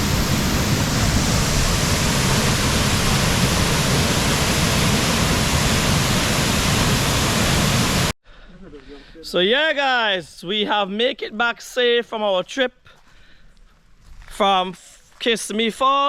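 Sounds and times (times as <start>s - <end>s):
waterfall rushing: 0.0s - 8.1s.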